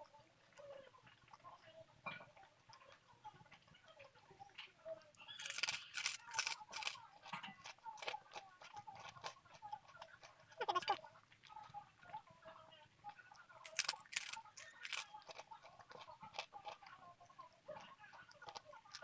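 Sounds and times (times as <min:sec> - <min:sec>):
chewing with small clicks: 0:00.0 - 0:19.0
loud crisp crunches: 0:05.4 - 0:07.0, 0:13.6 - 0:15.1.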